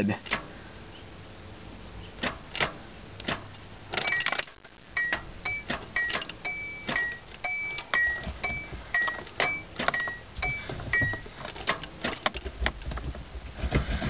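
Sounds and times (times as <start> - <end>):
clicks with short squeaks: 4.0 - 12.2.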